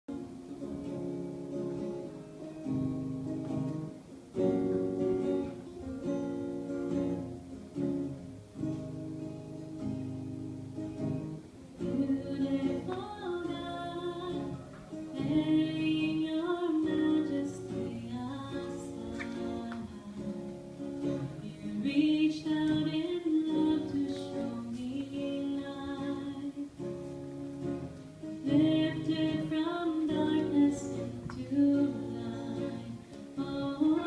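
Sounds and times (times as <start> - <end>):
strummed acoustic guitar: 0.1 - 34.0
woman singing: 11.8 - 27.1, 28.2 - 34.0.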